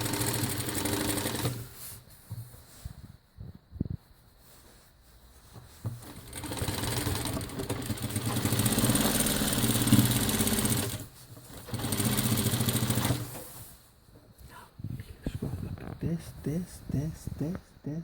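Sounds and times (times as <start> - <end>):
sewing machine stitching: 0.0 - 1.8, 6.0 - 13.6.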